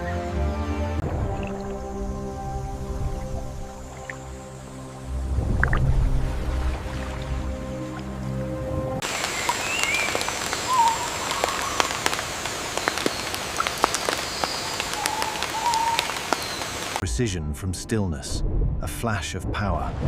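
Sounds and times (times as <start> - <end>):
background music: 0.0 - 9.9
rain pattering: 9.0 - 17.0
birds whistling calls: 9.1 - 17.0.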